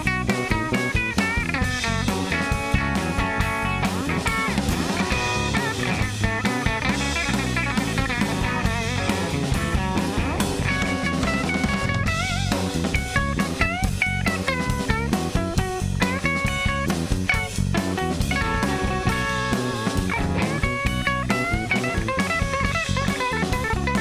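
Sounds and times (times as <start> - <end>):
blues guitar lead: 0.0 - 24.0
drum kit beat: 0.0 - 24.0.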